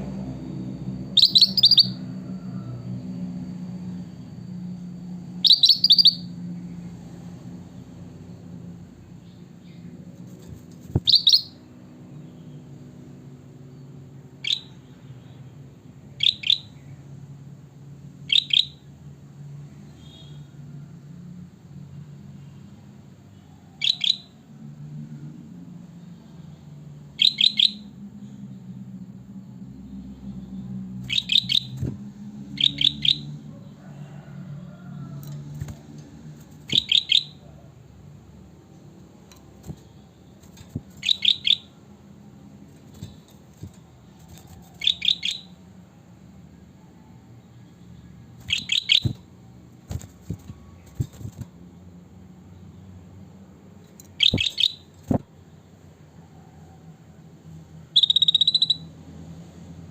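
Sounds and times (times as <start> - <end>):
steady low hum: 0.0 - 5.4
bird chirping: 1.0 - 2.1, 5.3 - 6.4, 10.9 - 12.7, 13.8 - 15.4, 16.1 - 17.0, 18.3 - 18.9, 23.8 - 24.4, 26.1 - 28.5, 29.4 - 33.8, 36.4 - 37.6, 39.4 - 41.8, 42.7 - 45.6, 47.4 - 49.2, 54.0 - 55.2, 57.9 - 58.9
bird calling sharp notes: 1.2 - 2.0, 11.0 - 11.6, 27.2 - 27.8, 31.1 - 31.9, 32.5 - 33.3, 36.6 - 37.5, 40.7 - 41.8, 44.8 - 45.5, 48.5 - 49.2, 54.2 - 54.9, 58.0 - 58.8.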